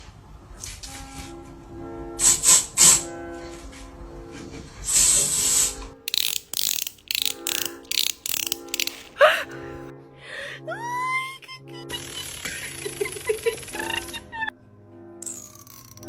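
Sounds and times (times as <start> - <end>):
background music: 5.6 - 16.0
rapid sharp clicks: 6.1 - 9.2.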